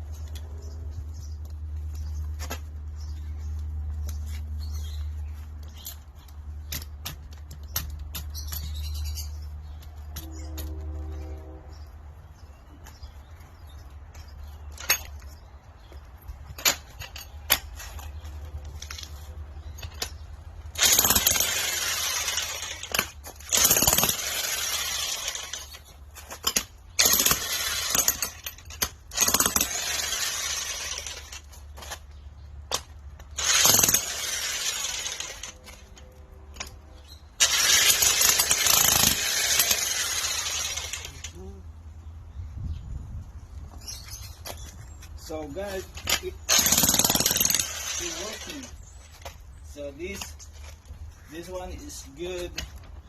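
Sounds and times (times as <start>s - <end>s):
electric jackhammer hammering: 20.7s - 25.8s, 26.4s - 31.5s, 32.8s - 35.8s, 37.4s - 41.4s, 46.1s - 48.8s.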